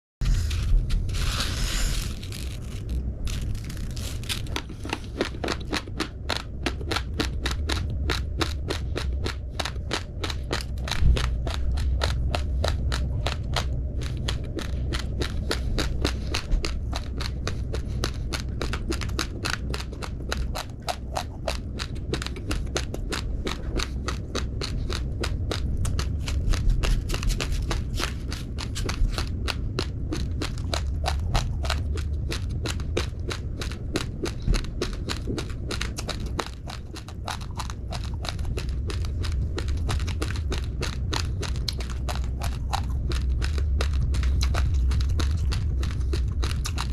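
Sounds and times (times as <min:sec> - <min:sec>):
low rumble: 0:00.2 - 0:46.9
rice grains crunched between teeth: 0:00.5 - 0:05.8.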